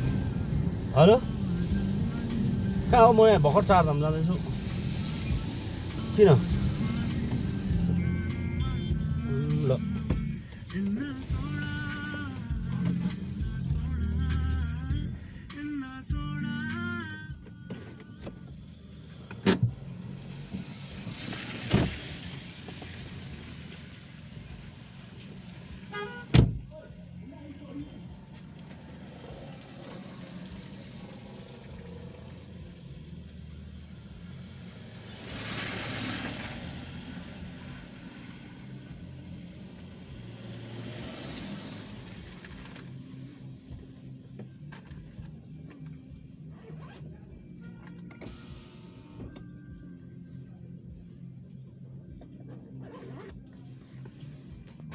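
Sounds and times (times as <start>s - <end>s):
tyres hissing on wet road: 0.0s - 8.5s, 19.8s - 26.2s, 28.3s - 43.0s
car engine and road rumble: 0.0s - 54.9s.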